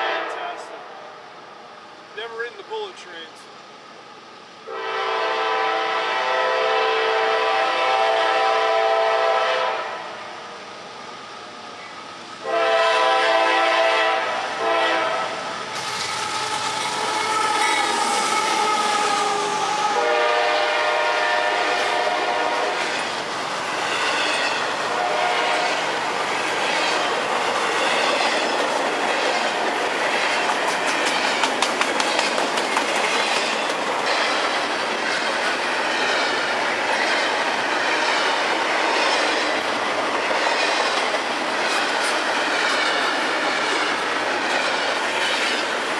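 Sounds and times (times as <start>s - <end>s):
locomotive air horn blasts: 0.0s - 0.4s, 4.7s - 10.1s, 12.4s - 15.4s, 17.0s - 22.8s, 24.9s - 25.8s
freight cars clacking over rails: 25.6s - 45.9s.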